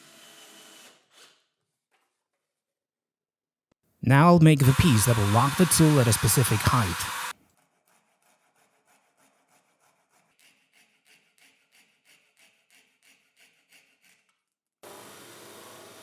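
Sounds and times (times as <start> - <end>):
loud steady noise: 4.1 - 7.3
hand tool strokes: 4.6 - 7.3.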